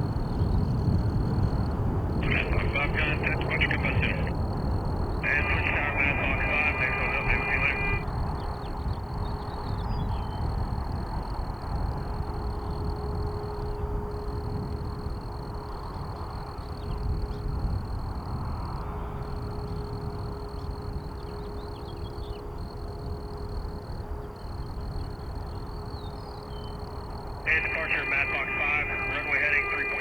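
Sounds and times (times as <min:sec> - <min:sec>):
jet aircraft rumble: 0:00.0 - 0:08.3, 0:27.3 - 0:30.0.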